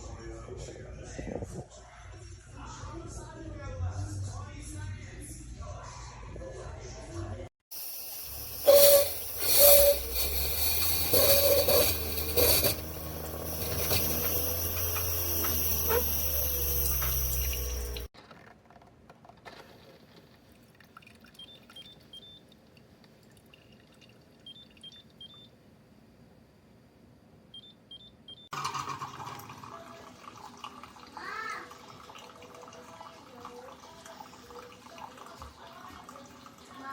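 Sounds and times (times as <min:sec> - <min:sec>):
coffee maker pump hum: 0:07.7 - 0:18.1
steam hissing: 0:07.7 - 0:18.1.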